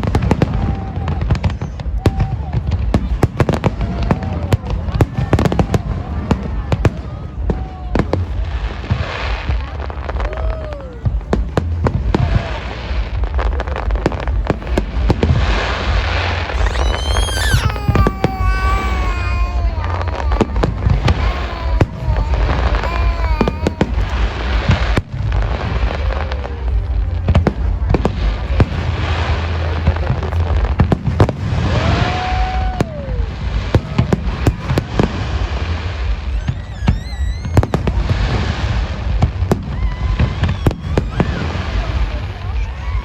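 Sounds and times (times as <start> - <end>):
fireworks bangs and crackling: 0.0 - 43.0
fireworks whistling: 15.2 - 26.0, 35.8 - 42.2.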